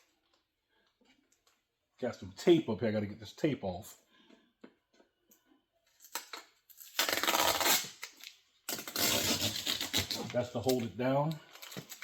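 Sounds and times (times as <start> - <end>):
tape ripping off: 6.0 - 10.9.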